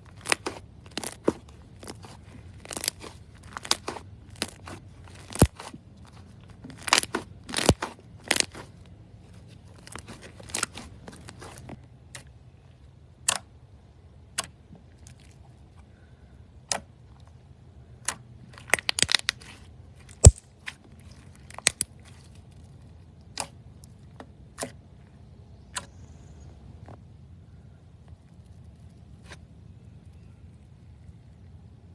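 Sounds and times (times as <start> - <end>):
slime popping and crackling: 0.1 - 8.7, 9.8 - 11.7, 18.5 - 22.3.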